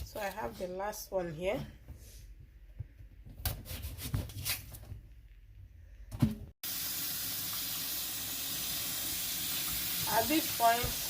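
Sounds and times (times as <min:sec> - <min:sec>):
kitchen tap running: 0:06.6 - 0:11.0.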